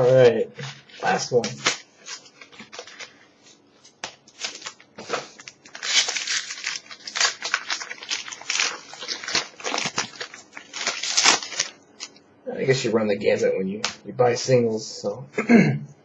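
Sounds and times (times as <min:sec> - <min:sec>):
foil wrapper tearing and crinkling: 0:00.0 - 0:03.2, 0:04.0 - 0:12.1.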